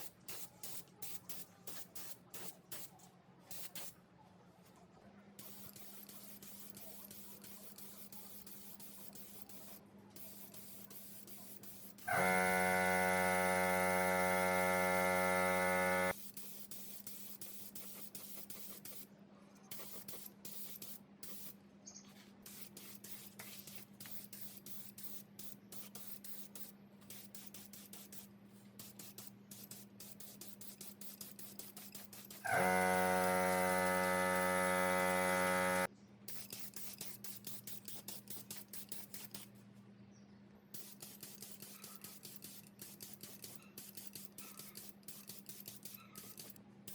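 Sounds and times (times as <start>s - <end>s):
small clicks and scrapes: 4.6s - 12.4s, 15.0s - 39.7s, 40.8s - 46.9s
loud electrical buzz: 12.1s - 16.2s, 32.4s - 35.9s.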